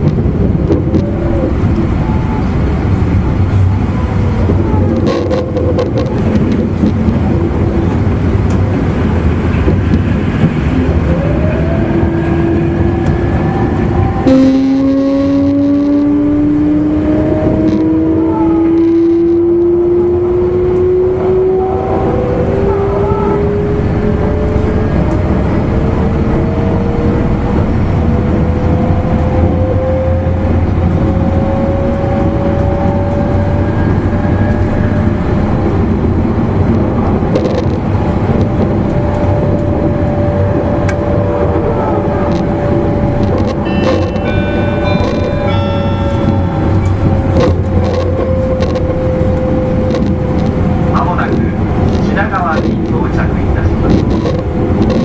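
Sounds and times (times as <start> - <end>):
train wheels rumbling on rails: 0.0 - 55.0
electric train motor whine: 10.4 - 19.4, 37.3 - 52.0.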